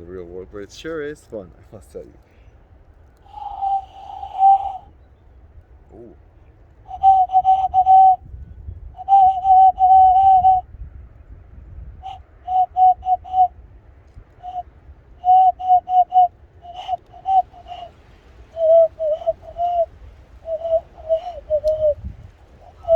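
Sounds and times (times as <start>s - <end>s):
hand whistle bird call: 3.3s - 4.9s, 6.9s - 8.2s, 9.0s - 10.6s, 12.0s - 13.5s, 14.4s - 14.6s, 15.2s - 22.9s.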